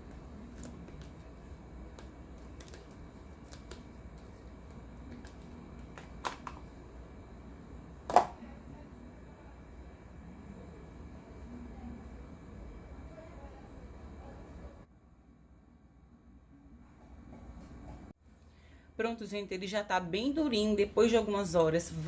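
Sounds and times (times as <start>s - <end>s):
knocks of soap bars: 8.1s - 8.4s.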